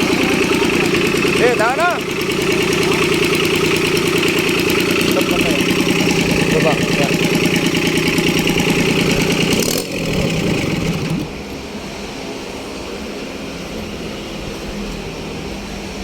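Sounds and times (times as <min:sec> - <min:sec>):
tractor diesel engine running: 0:00.0 - 0:11.4.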